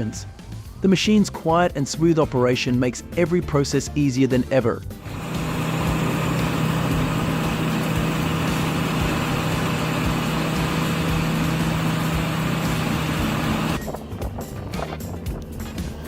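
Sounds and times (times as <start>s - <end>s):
wood chipper running: 5.0s - 14.1s.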